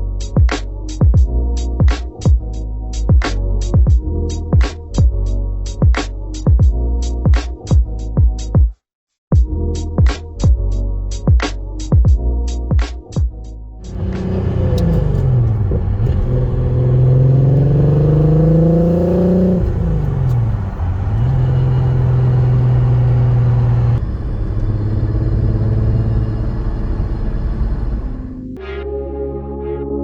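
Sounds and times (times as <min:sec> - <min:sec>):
car engine pulling through gears: 0:13.9 - 0:28.6.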